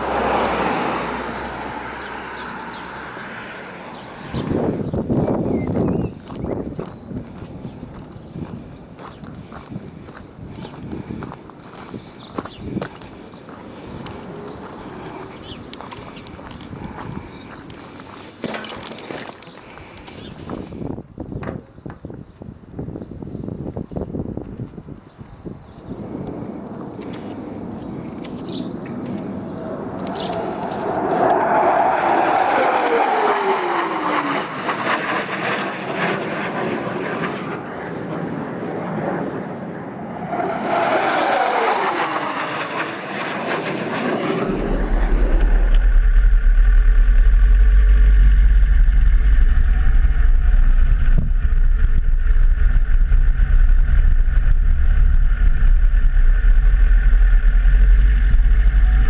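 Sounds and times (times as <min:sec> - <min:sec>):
vehicles passing by: 0:00.0 - 0:21.0, 0:24.9 - 0:35.1, 0:40.2 - 0:59.0
motorcycle engine running: 0:45.2 - 0:59.0.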